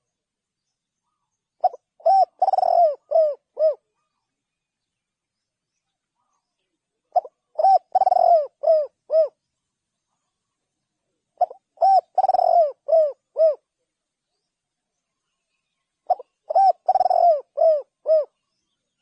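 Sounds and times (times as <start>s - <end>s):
dove cooing: 1.1s - 4.2s, 7.0s - 9.4s, 11.4s - 13.7s, 16.0s - 18.4s.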